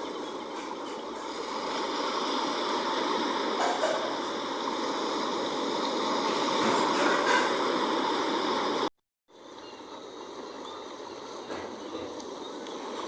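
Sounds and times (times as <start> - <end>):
sea waves rushing surf: 0.0 - 8.9.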